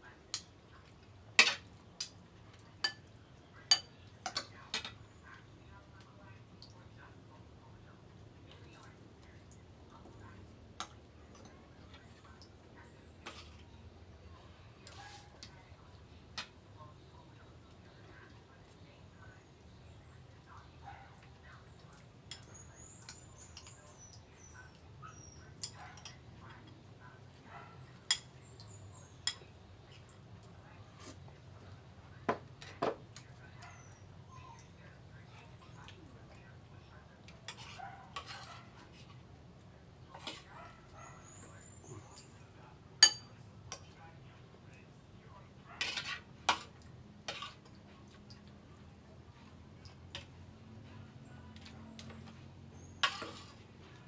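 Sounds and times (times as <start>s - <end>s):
spoon clinking against bowl: 43.0s - 43.8s.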